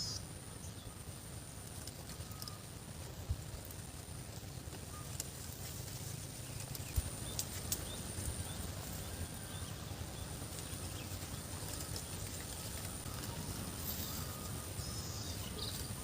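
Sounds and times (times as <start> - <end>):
faint high chirps: 7.2 - 16.0.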